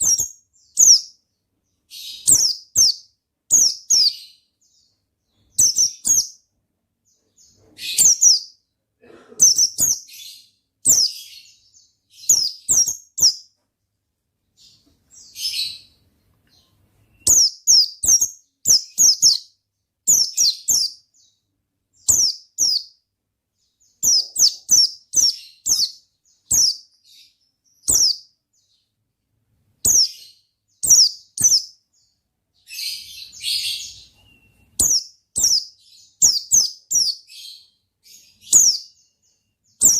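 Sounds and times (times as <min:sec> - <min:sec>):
bird chirping song: 0:00.0 - 0:39.9
harsh bird chattering: 0:09.4 - 0:10.0.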